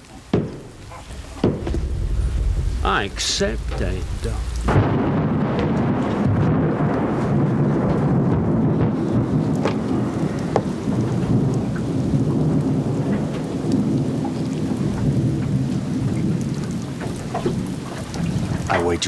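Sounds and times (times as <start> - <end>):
heavy rain falling: 0.0 - 19.0
low rumble of thunder: 0.3 - 19.0
drips and splashes: 9.4 - 19.0.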